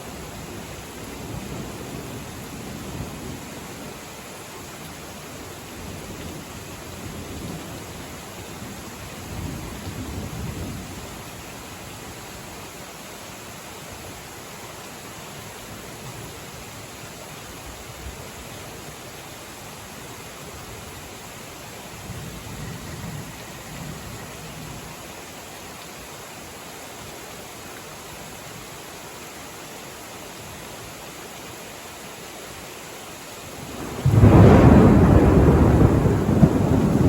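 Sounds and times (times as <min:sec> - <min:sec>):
rain hiss: 0:00.0 - 0:37.0
thunder rumble: 0:33.6 - 0:37.0.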